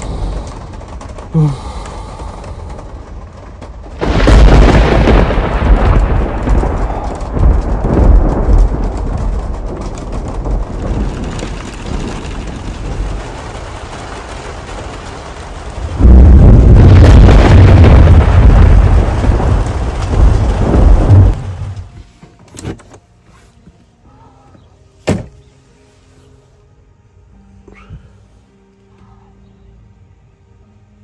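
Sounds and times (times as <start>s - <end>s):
thunder rolling: 0.0s - 21.9s
rain pattering on roof: 0.0s - 22.0s.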